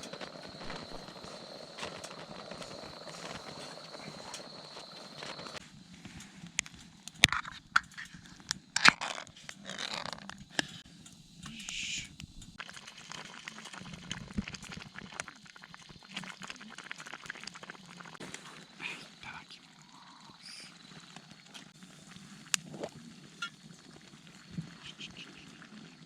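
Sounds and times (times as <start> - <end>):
crunches and rustles of handling: 0.0 - 6.9
campfire crackling and popping: 0.0 - 26.0.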